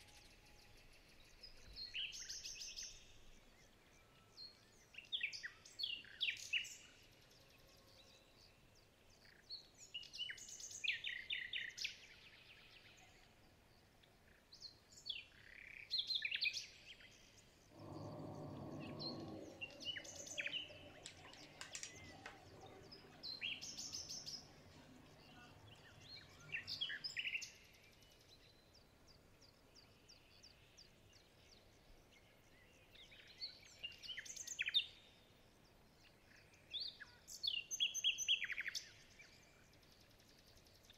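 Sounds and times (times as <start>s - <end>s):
small birds chirping: 0.7s - 40.9s
low hum: 17.6s - 27.8s.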